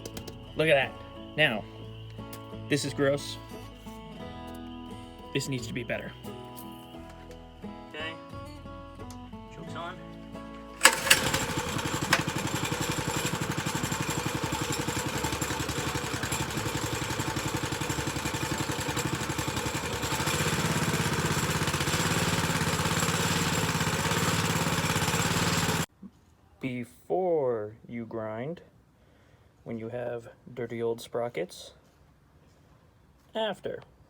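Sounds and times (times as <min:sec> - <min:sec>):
mini bike engine putter: 0:10.8 - 0:25.9.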